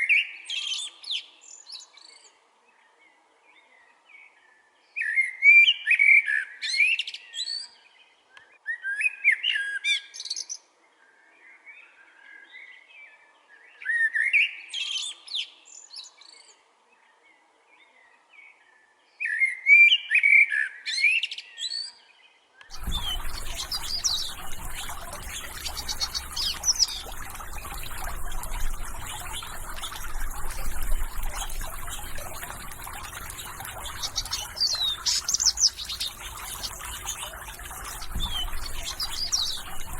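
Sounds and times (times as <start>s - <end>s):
chorus of many birds calling: 22.7s - 39.9s
steady outdoor hiss: 22.7s - 39.9s.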